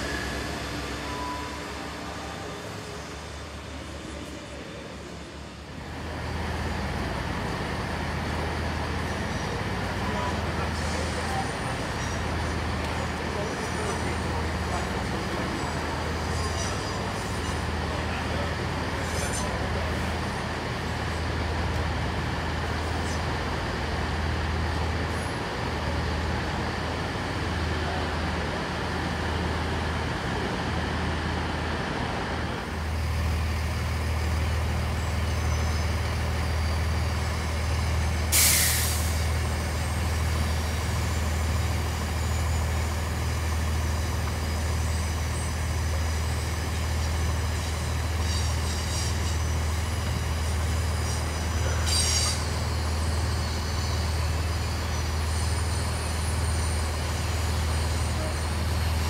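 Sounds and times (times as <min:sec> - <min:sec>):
train engines idling: 0:00.0 - 0:59.0
air brake hiss: 0:38.3 - 0:39.3.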